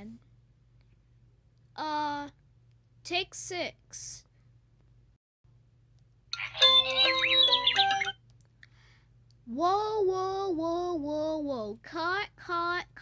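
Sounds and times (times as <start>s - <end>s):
electronic jingle with bell-like chimes: 6.4s - 8.1s
gliding sung voice: 6.4s - 8.1s.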